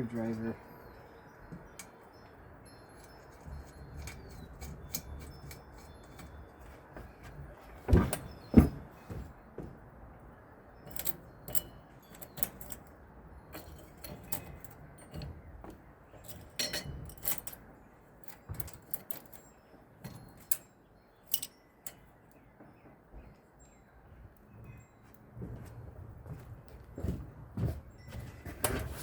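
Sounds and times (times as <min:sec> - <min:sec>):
screwdriver clicking on metal screws: 0:03.0 - 0:06.6, 0:10.8 - 0:15.4, 0:16.2 - 0:17.6, 0:18.2 - 0:22.1.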